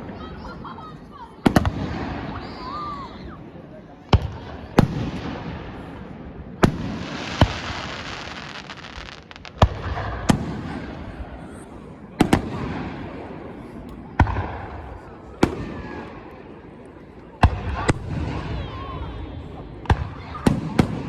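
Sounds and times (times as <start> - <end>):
fireworks booming: 4.1 - 11.2
fireworks crackling: 6.6 - 11.1.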